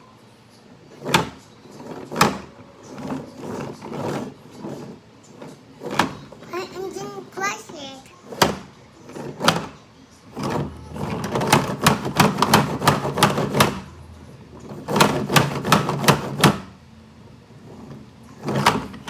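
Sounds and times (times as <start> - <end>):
plastic toy trucks clattering: 0.9 - 6.5, 8.2 - 14.0, 14.6 - 16.7, 17.6 - 19.0.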